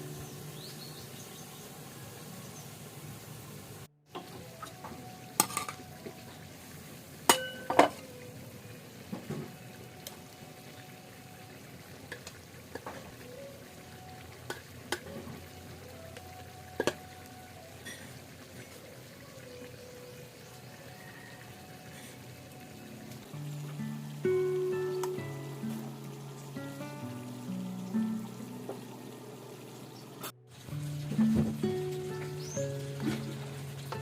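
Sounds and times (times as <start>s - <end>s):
food sizzling: 0.0s - 34.0s
metal utensil scraping a pan: 5.4s - 5.8s.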